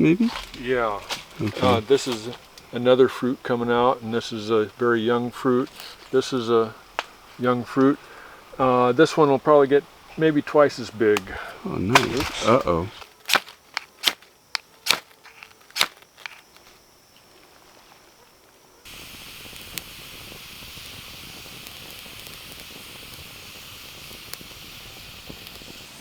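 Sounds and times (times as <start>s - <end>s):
campfire hissing and popping: 0.0s - 18.2s, 18.8s - 26.0s.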